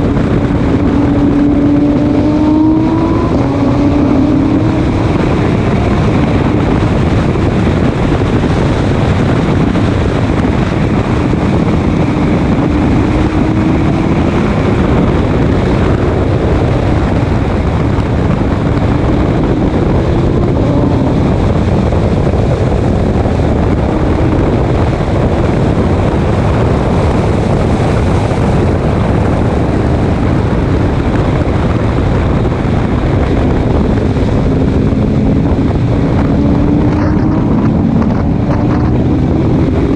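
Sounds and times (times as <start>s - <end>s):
race car engine: 0.0s - 39.9s
wind and road noise: 0.0s - 39.9s.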